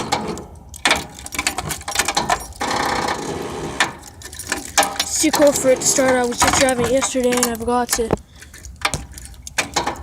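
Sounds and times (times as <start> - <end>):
tractor engine cranking: 0.0 - 10.0.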